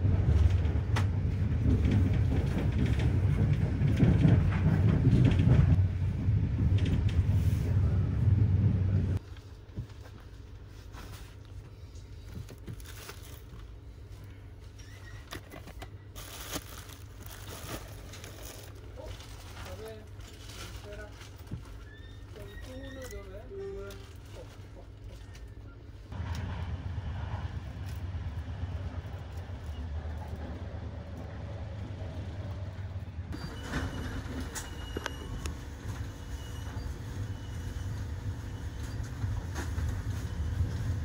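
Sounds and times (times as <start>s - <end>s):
train rumbling: 0.0s - 41.0s
plastic-wrapped bedding crinkling: 16.2s - 21.6s.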